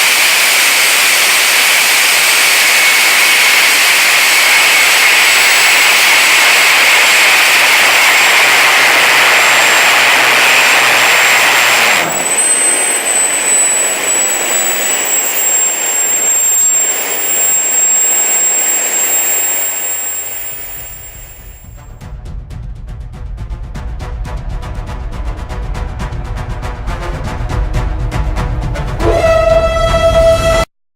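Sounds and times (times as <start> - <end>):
high-pitched turbine whine: 0.0 - 22.0, 29.0 - 30.7
jet engine roar: 0.0 - 22.0.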